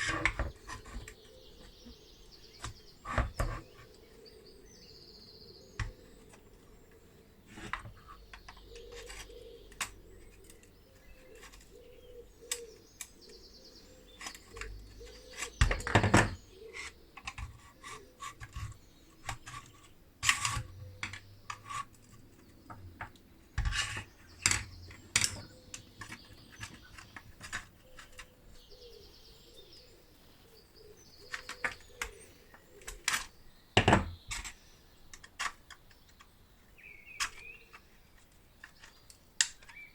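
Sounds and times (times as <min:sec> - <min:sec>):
clicks and taps of hand work: 0:14.2 - 0:28.4, 0:37.2 - 0:39.9.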